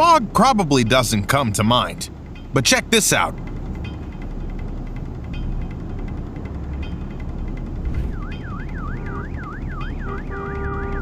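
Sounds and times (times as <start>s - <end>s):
low steady rumble: 4.4s - 9.2s
steady siren tone: 7.8s - 10.7s.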